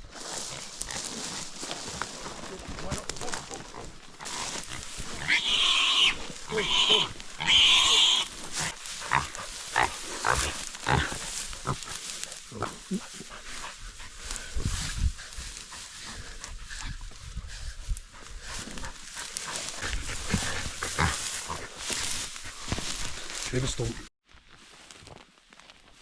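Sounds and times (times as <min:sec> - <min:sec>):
pig grunting and squealing: 0:02.8 - 0:13.6, 0:18.4 - 0:22.2.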